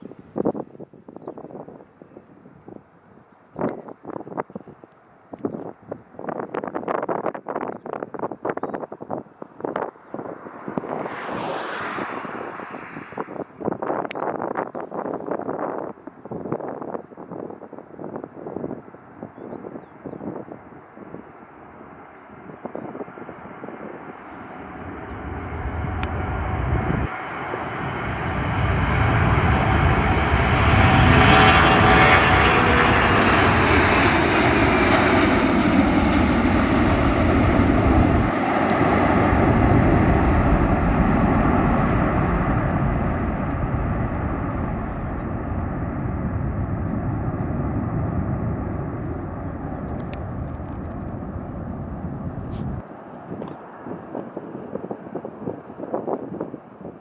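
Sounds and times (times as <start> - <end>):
jet engine roar: 8.8 - 16.3, 17.0 - 57.0
high jet whine: 9.0 - 15.9, 20.2 - 56.9.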